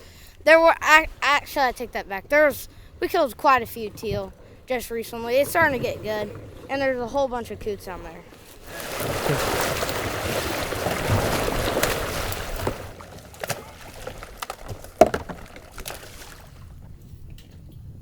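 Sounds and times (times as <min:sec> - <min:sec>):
water splashing and sloshing: 0:00.0 - 0:17.2.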